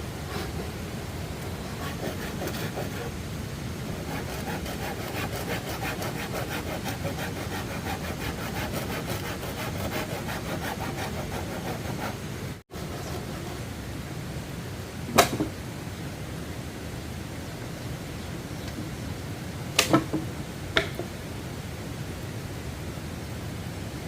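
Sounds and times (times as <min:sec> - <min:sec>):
hand saw cutting wood: 0:01.8 - 0:03.2, 0:04.0 - 0:12.2, 0:12.8 - 0:13.6.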